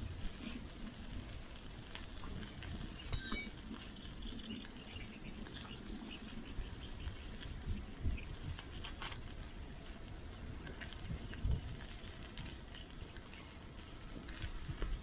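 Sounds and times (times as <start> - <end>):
small clicks and crackles: 0.0 - 15.0
metallic clink: 3.0 - 3.6.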